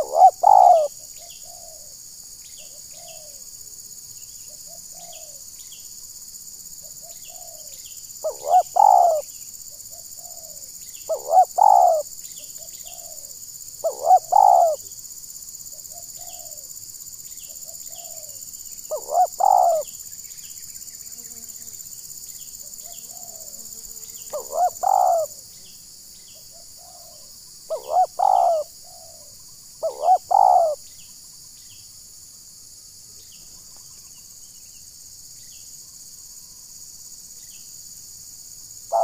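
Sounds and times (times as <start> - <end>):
dove cooing: 0.0 - 2.0, 6.9 - 9.3, 9.9 - 12.0, 12.6 - 14.9, 15.8 - 16.7, 17.6 - 19.9, 24.3 - 25.4, 26.5 - 30.8.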